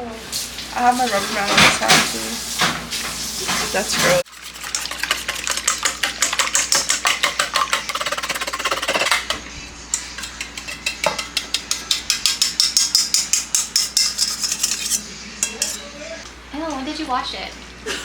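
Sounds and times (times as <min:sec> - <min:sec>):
utensil clicking against bowl: 0:04.5 - 0:15.8.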